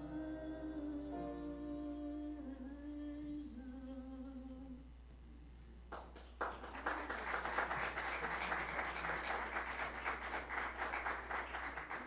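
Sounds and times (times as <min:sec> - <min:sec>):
crowd clapping: 0:05.9 - 0:12.0.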